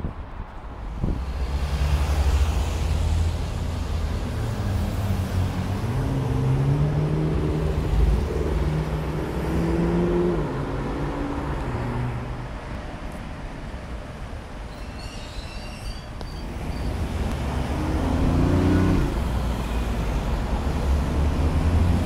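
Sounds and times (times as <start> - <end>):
city traffic noise: 0.0 - 22.0
car engine accelerating: 16.5 - 19.6.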